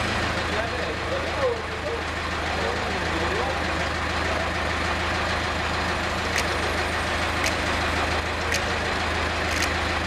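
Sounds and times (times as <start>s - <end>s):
sawmill machinery running: 2.2s - 10.0s
sharp ticks: 6.3s - 6.8s, 7.4s - 7.8s, 8.5s - 8.8s, 9.5s - 9.8s.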